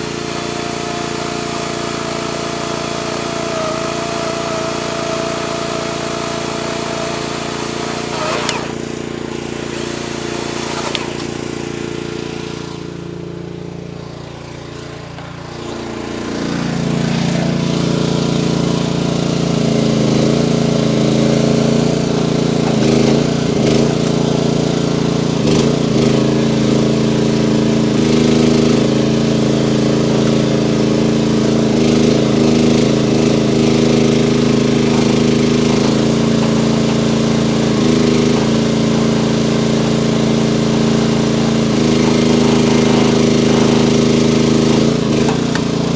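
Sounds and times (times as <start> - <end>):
hydraulics taking load: 0.0 - 12.3, 20.9 - 24.7, 32.7 - 45.9
diesel engine running hard: 0.0 - 45.9.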